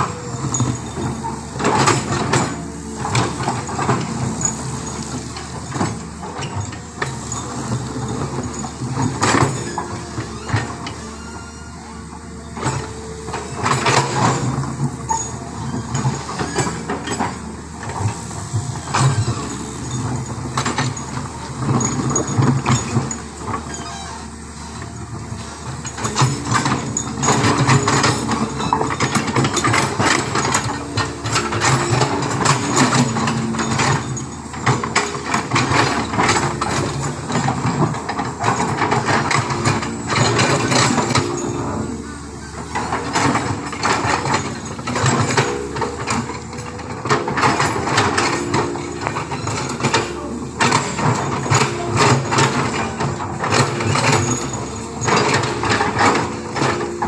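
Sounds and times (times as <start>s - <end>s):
rattling and clatter: 12.1s - 57.0s.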